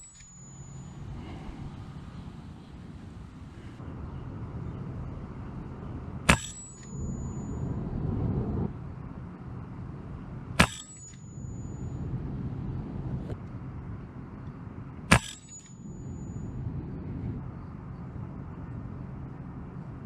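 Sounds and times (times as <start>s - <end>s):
wind rumbling on microphone: 1.0s - 10.6s, 11.6s - 15.1s, 15.8s - 20.0s
air rifle shots cracking: 6.3s - 6.8s, 10.6s - 11.1s, 15.1s - 15.6s.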